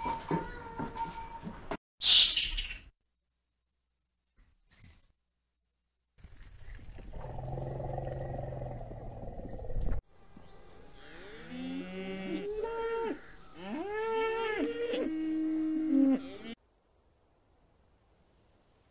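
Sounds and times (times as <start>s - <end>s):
cows mooing: 11.0s - 16.6s.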